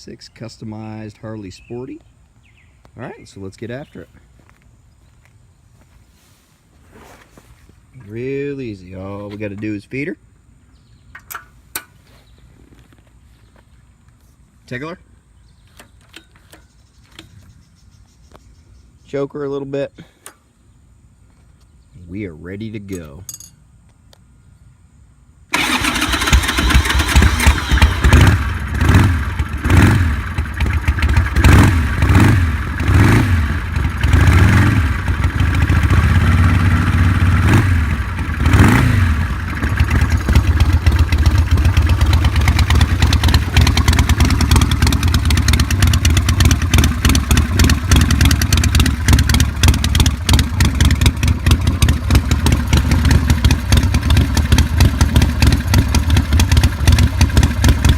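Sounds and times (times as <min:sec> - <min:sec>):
motorcycle engine idling: 0:25.5 - 0:57.9
motorcycle engine starting and revving: 0:25.5 - 0:57.9.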